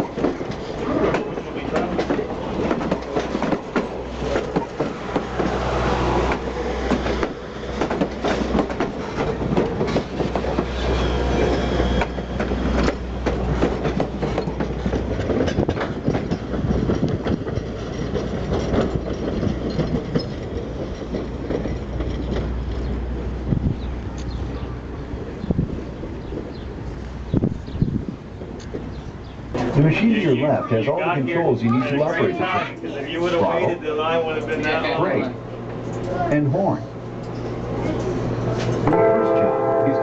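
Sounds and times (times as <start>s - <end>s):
wheels clicking over rail joints: 0.0s - 30.4s, 37.0s - 39.8s
low train rumble: 0.0s - 40.0s.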